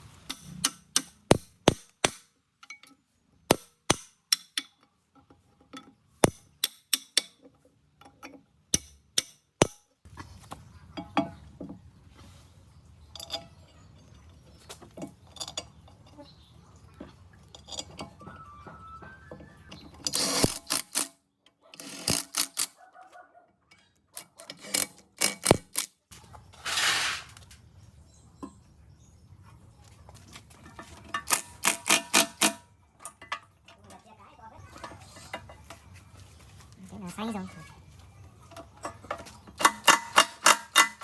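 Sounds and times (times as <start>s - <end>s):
metal tools and parts clinking: 0.2s - 10.0s, 13.0s - 16.4s, 17.4s - 18.2s, 20.0s - 21.2s, 21.8s - 22.8s, 23.7s - 27.7s, 30.6s - 34.0s, 38.5s - 41.0s.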